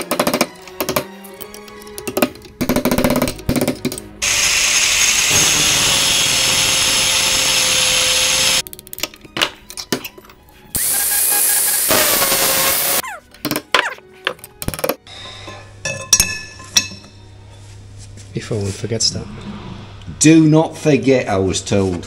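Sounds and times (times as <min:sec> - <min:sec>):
handheld power tool running: 0:04.2 - 0:08.6, 0:10.8 - 0:13.0.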